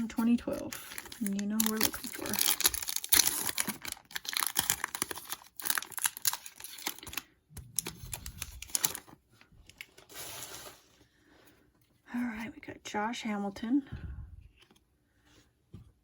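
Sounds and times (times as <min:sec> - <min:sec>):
foil wrapper tearing and crinkling: 0:00.0 - 0:09.2.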